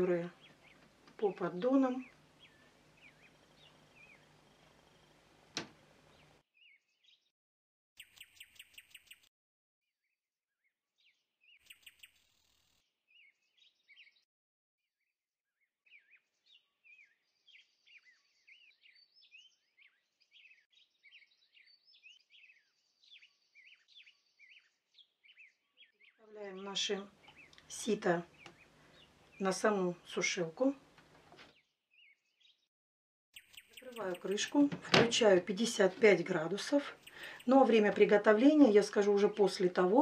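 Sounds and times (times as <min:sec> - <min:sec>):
songbirds chirping: 0:00.0 - 0:07.3, 0:15.8 - 0:32.7, 0:33.4 - 0:40.0.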